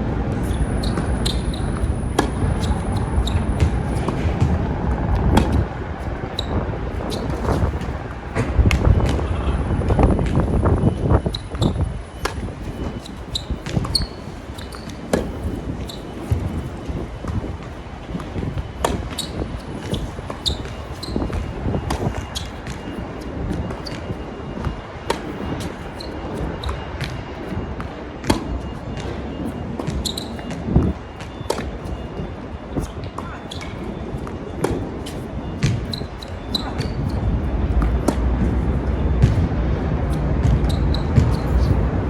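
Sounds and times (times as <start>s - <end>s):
wind rumbling on microphone: 0.0s - 42.0s
tennis ball bouncing on court: 0.3s - 9.3s, 9.9s - 32.2s, 32.8s - 42.0s
tennis ball hit by rackets: 0.4s - 5.7s, 31.5s - 31.9s, 33.1s - 38.6s, 40.1s - 41.9s.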